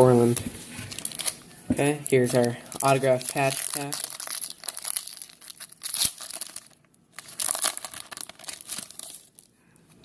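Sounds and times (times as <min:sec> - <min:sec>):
card pack wrapper tearing and crinkling: 0:00.9 - 0:01.4, 0:02.0 - 0:09.5.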